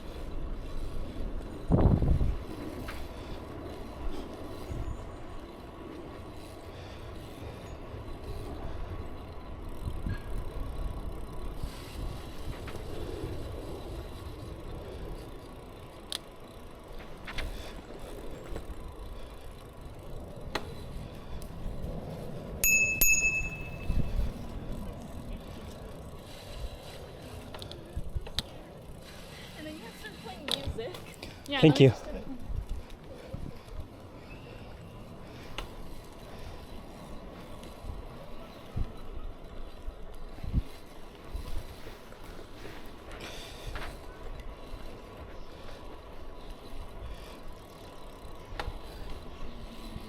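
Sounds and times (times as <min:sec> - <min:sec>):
bicycle tyres rumbling: 0:00.0 - 0:50.0
wind: 0:00.0 - 0:50.0
bicycle bell ringing: 0:22.6 - 0:24.4.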